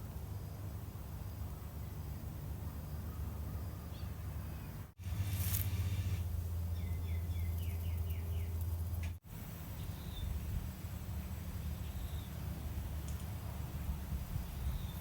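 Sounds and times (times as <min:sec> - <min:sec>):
steady low hum: 0:04.8 - 0:15.0
bird chirping: 0:06.7 - 0:08.6.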